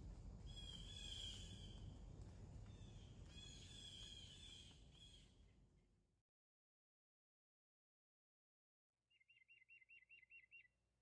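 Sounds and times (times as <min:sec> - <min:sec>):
low steady rumble: 0:00.0 - 0:04.5
faint bird song: 0:00.4 - 0:02.0, 0:02.6 - 0:05.6, 0:09.0 - 0:11.0.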